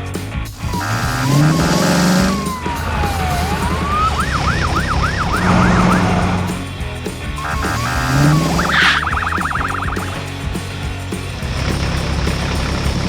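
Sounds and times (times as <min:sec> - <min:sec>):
cartoon siren sweeping: 0:00.6 - 0:06.6, 0:07.4 - 0:10.2
long falling and rising tone: 0:00.6 - 0:06.6, 0:07.4 - 0:10.2
rising low whine: 0:00.6 - 0:06.8, 0:07.4 - 0:10.4
short beeping tones: 0:07.4 - 0:10.2.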